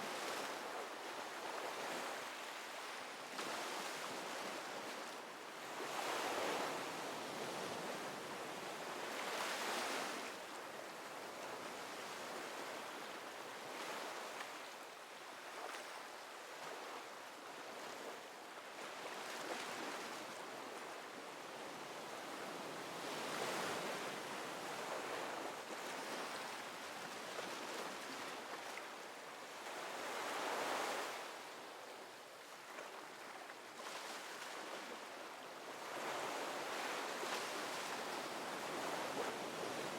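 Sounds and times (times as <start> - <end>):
ocean waves breaking on shore: 0.0 - 10.6, 18.8 - 32.0, 32.6 - 39.9.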